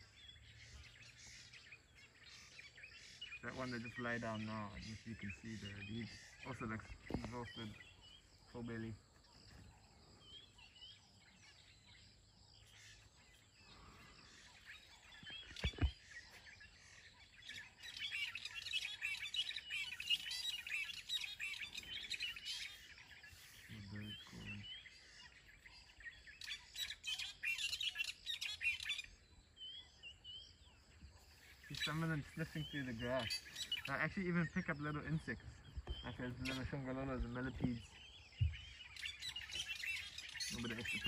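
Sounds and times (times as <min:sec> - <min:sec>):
small birds chirping: 0:00.0 - 0:41.0
low thump: 0:38.4 - 0:38.8.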